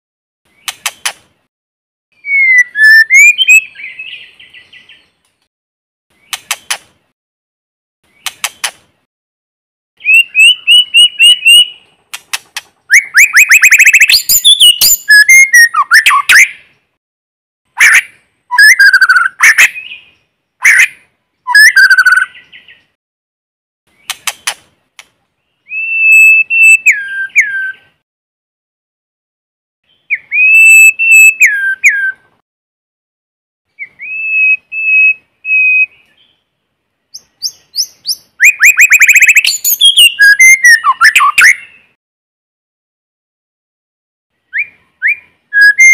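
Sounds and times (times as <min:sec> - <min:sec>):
bird singing whistles and chatter: 0:02.2 - 0:04.3, 0:10.0 - 0:11.8, 0:12.9 - 0:16.6, 0:17.9 - 0:20.0, 0:21.5 - 0:22.8, 0:25.6 - 0:27.9, 0:30.0 - 0:32.2, 0:33.8 - 0:36.3, 0:37.2 - 0:41.9, 0:44.5 - 0:45.9.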